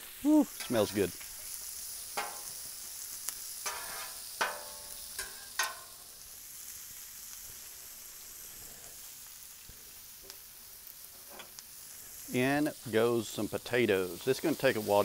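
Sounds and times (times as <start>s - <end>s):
onion sizzling on griddle: 0.0s - 15.0s
metal spatulas scraping griddle: 3.6s - 5.9s, 11.2s - 11.6s.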